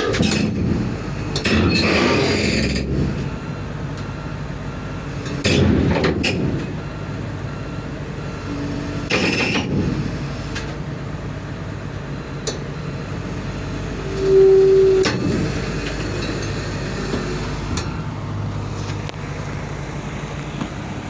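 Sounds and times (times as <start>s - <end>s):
diesel machinery running: 0.0s - 21.0s
short steady hooting tone: 14.0s - 15.1s.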